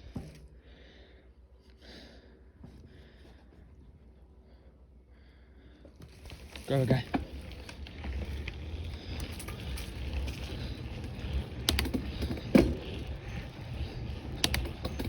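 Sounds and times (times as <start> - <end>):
bicycle clicks and rattles: 5.9 - 15.0.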